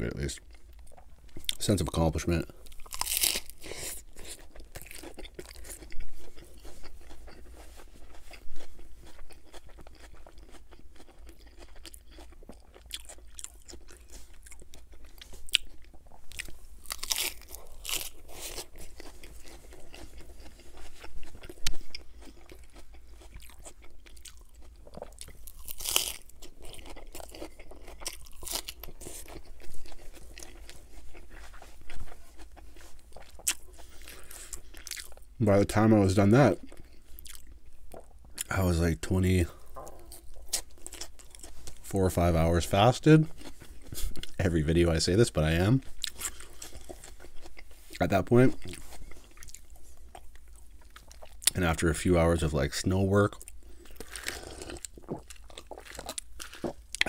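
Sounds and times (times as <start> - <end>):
lettuce crunching: 0.8 - 35.3, 36.2 - 51.8, 53.3 - 57.0
moist chewing: 2.6 - 35.3.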